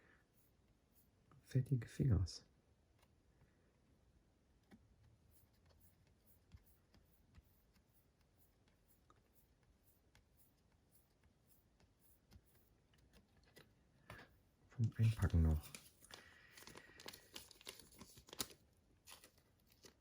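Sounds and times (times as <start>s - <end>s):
trading cards clicking and rubbing: 4.7s - 20.0s.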